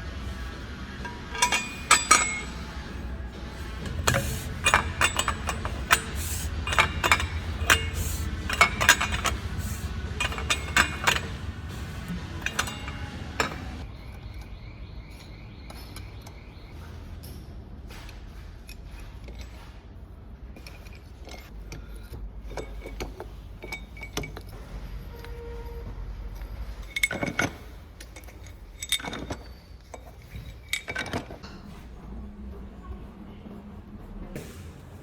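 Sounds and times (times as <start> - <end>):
low workshop hum: 0.0 - 35.0
metal tools clinking and clanking: 0.1 - 14.4, 20.6 - 25.7, 26.3 - 31.9.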